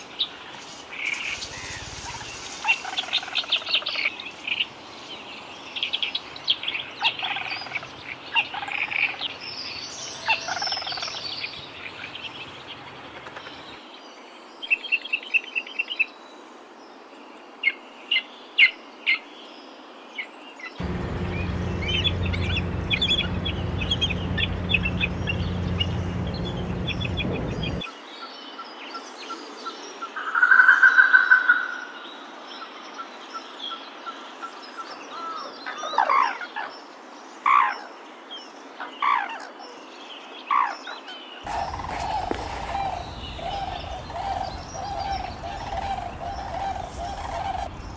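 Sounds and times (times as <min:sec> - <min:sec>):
birds chirping and calling: 0:20.8 - 0:27.8, 0:41.5 - 0:47.9
low steady hum: 0:20.8 - 0:27.8, 0:41.5 - 0:47.9.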